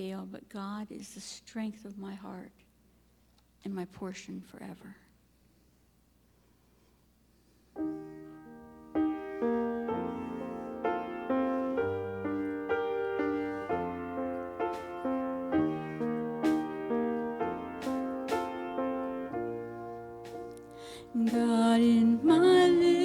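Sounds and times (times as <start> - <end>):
piano broken chords: 7.8 - 23.0
congregational worship song: 7.9 - 23.0.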